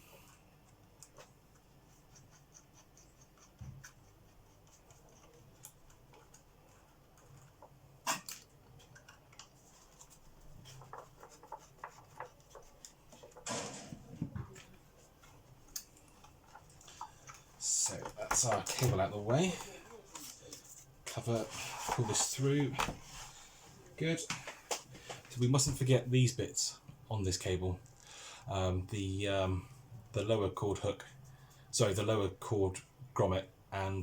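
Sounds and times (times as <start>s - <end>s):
scraping rustle: 20.1s - 23.4s.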